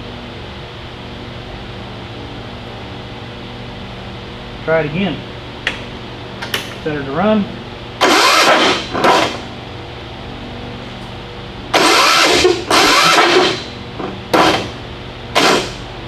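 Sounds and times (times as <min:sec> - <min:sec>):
generator engine cranking and firing: 0:05.6 - 0:07.0, 0:07.9 - 0:09.7, 0:10.8 - 0:16.0.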